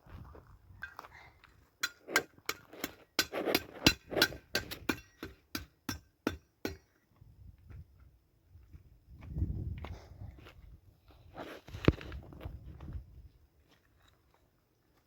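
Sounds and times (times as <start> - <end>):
sharp knocks with clinking ring: 1.8 - 6.9.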